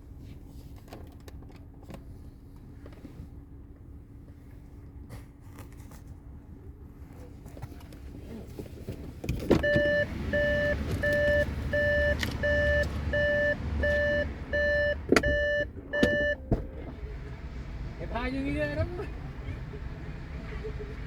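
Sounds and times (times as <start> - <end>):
low engine rumble: 0.0 - 21.0
car warning chime beeping: 9.6 - 16.9.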